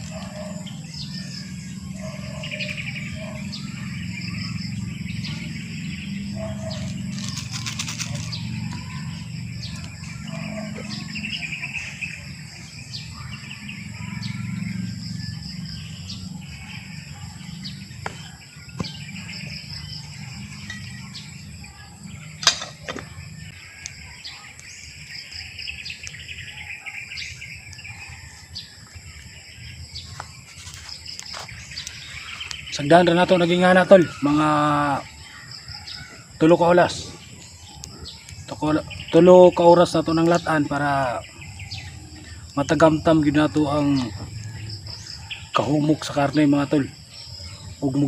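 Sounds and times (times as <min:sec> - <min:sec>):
steady low rumble: 0:00.0 - 0:24.0
steady high whine: 0:00.0 - 0:48.0
wild birds chirping: 0:00.0 - 0:48.0.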